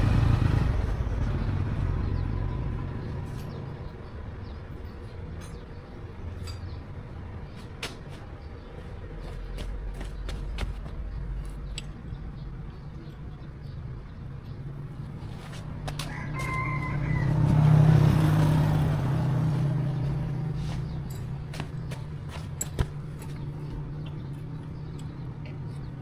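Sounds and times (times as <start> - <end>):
rooster crowing: 16.0 - 18.4.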